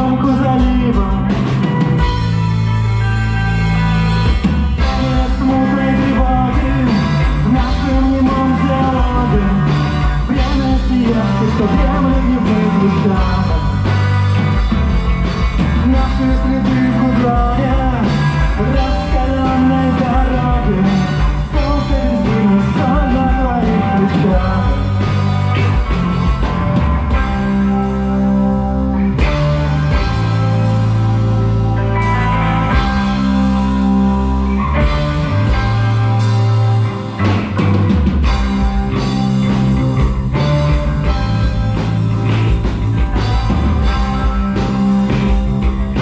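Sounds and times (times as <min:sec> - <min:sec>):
person singing: 0:00.0 - 0:01.8, 0:04.8 - 0:14.0, 0:15.8 - 0:25.2
rock band playing live: 0:00.0 - 0:46.0.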